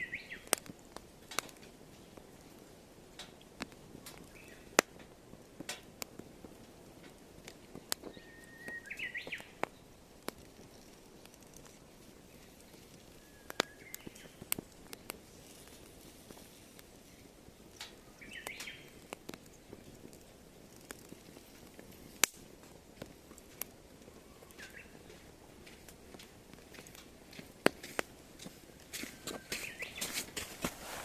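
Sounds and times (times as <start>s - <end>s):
bird calling: 0.0s - 0.5s, 8.0s - 9.6s, 13.1s - 14.5s, 18.1s - 18.9s, 24.1s - 25.1s
firewood crackling and popping: 0.0s - 31.0s.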